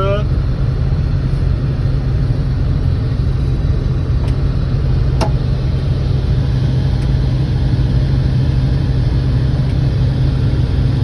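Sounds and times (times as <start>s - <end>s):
harvester engine droning: 0.0s - 11.0s.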